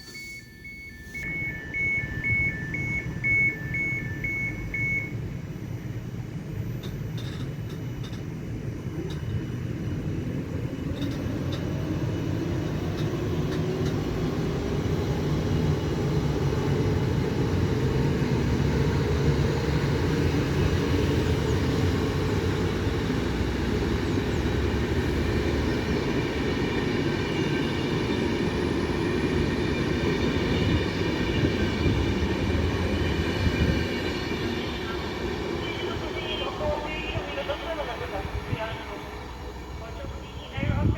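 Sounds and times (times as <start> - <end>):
high whining tones: 0.0 - 7.6
passenger train rumbling: 0.0 - 40.9.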